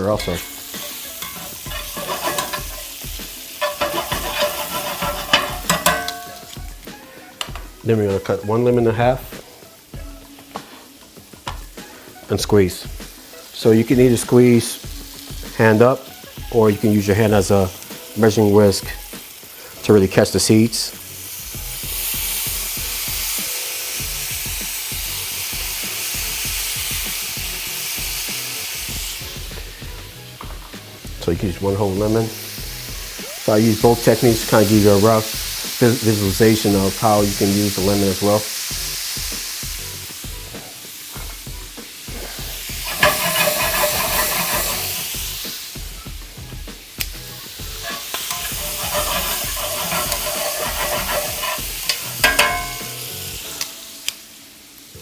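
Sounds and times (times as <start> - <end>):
faint music: 0.0 - 55.0
food sizzling in a pan: 0.0 - 55.0.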